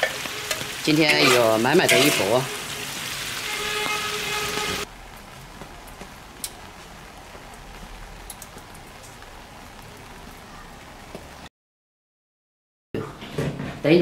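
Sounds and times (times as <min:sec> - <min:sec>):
meat sizzling in a wok: 0:00.0 - 0:04.9.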